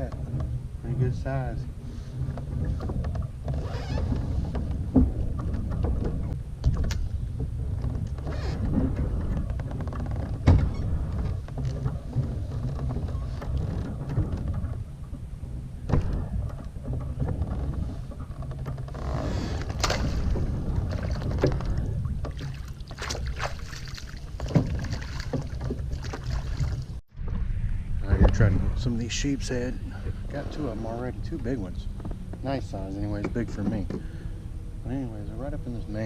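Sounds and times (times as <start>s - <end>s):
low rumble: 0.0s - 36.0s
knocks and splashes from kayak: 1.8s - 27.4s.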